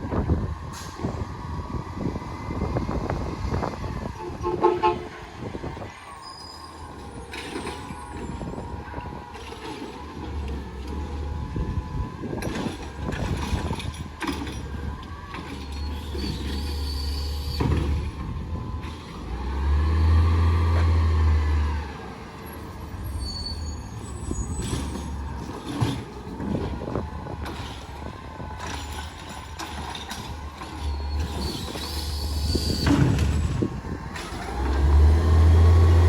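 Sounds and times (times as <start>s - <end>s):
diesel engine running and revving: 0.0s - 36.0s
knocks and clanks: 24.6s - 32.1s.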